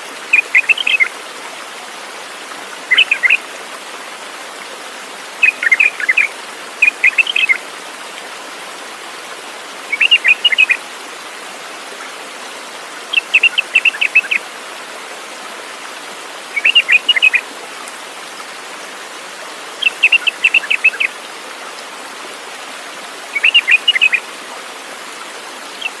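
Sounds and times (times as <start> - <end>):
songbird chirping: 0.3 - 1.1, 2.9 - 3.4, 5.4 - 7.6, 9.9 - 10.8, 16.6 - 17.4, 19.8 - 21.1, 23.3 - 24.2.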